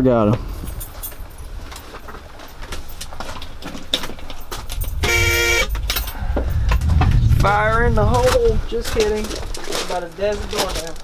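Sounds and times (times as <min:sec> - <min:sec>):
low engine rumble: 0:04.3 - 0:09.7
short vehicle horn toot: 0:05.0 - 0:05.8.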